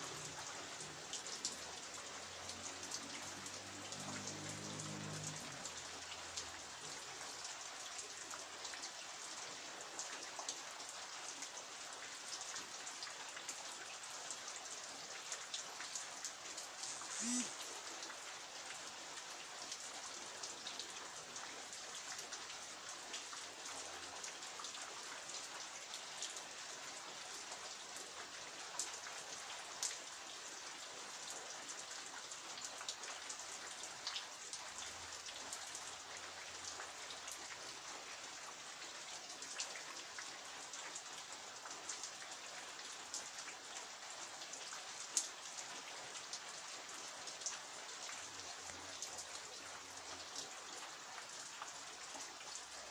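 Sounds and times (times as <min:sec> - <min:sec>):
steady rain falling: 0:00.0 - 0:52.9
raindrops ticking close by: 0:00.1 - 0:26.6.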